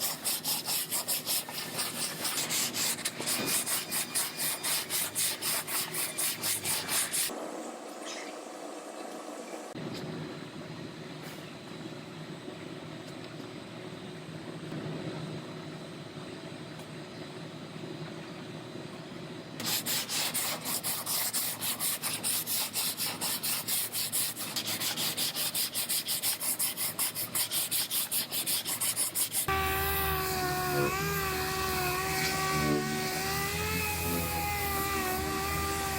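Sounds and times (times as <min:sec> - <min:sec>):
hand sanding strokes: 0:00.0 - 0:07.4, 0:19.6 - 0:35.9
steady low hum: 0:26.0 - 0:35.9
power tool whine: 0:29.5 - 0:35.9.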